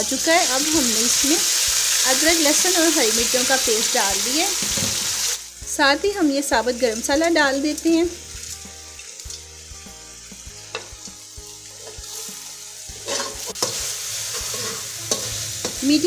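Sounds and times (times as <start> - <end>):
food sizzling in hot oil: 0.0 - 16.0
metal spatula scraping pan: 13.0 - 15.8.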